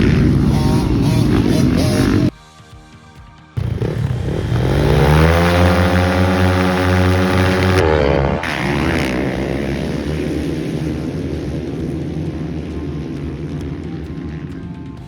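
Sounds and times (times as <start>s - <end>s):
motocross bike engine revving: 0.0s - 2.3s, 3.6s - 15.0s.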